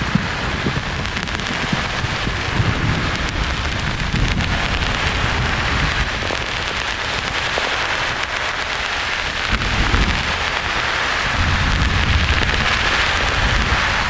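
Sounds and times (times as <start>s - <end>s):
low rolling thunder: 0.0s - 8.3s, 9.2s - 14.0s
white noise hiss: 0.0s - 14.0s.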